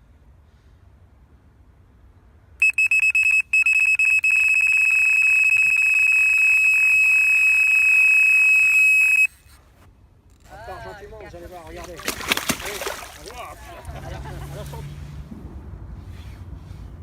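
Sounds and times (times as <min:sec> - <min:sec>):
electronic bite alarm beeping: 0:02.6 - 0:09.4.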